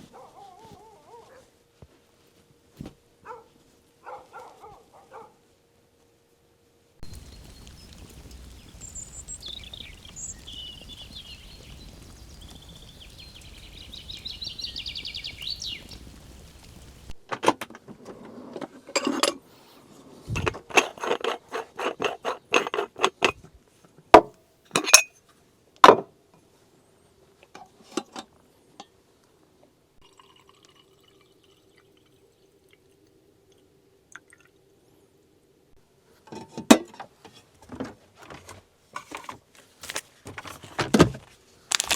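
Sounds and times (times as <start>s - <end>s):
low outdoor ambience: 0.0s - 41.9s
birds singing: 7.0s - 17.1s
liquid being poured: 7.0s - 17.2s, 30.0s - 34.7s
dishes and glass clinking: 24.7s - 25.2s.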